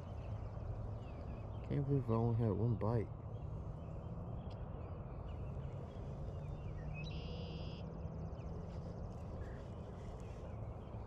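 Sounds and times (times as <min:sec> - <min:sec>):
faint bird chirps: 0:03.3 - 0:11.0.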